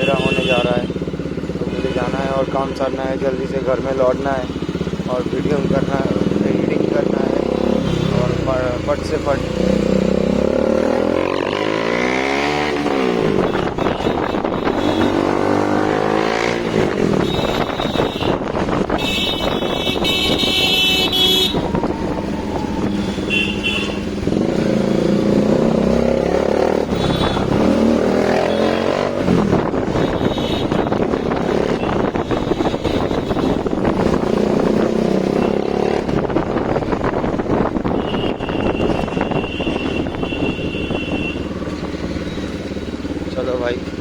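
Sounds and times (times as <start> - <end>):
vehicle horn: 0.0 - 1.0, 13.4 - 24.2, 26.9 - 27.6, 29.9 - 33.8, 37.8 - 41.6
motorcycle engine revving: 0.0 - 44.0.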